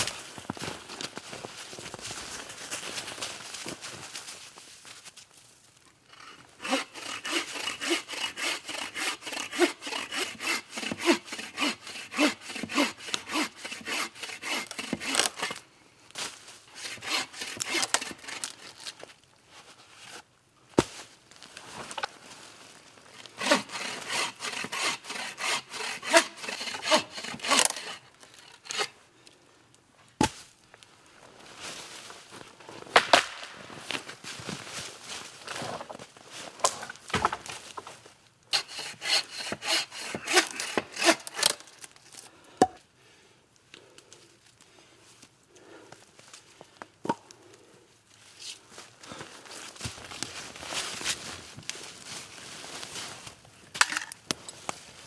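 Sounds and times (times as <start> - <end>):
hand saw cutting wood: 6.1 - 15.6, 16.7 - 19.0, 23.1 - 28.9, 38.5 - 41.7.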